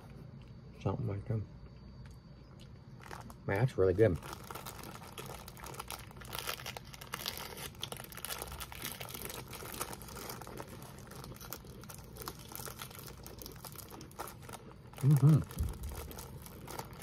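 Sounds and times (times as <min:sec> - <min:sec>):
plastic wrapper crinkling: 0:02.6 - 0:17.0.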